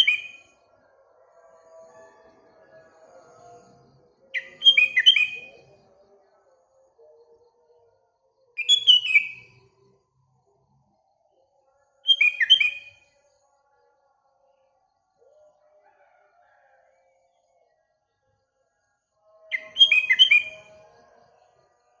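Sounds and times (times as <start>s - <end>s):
bulbul singing whistled notes: 0.0s - 0.5s, 4.4s - 5.7s, 8.6s - 9.5s, 12.1s - 13.0s, 19.5s - 20.8s.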